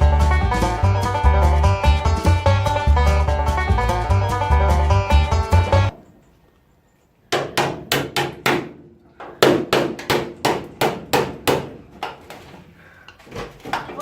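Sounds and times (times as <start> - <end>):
hammer striking car bodywork: 7.3 - 12.1.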